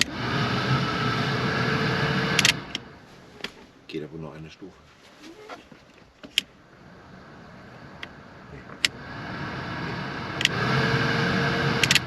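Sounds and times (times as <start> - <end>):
steady motor hum: 0.0 - 3.3, 6.6 - 12.0
rush of air from blower fan: 0.0 - 3.4, 6.7 - 12.0
fan switch clicks: 2.4 - 2.9.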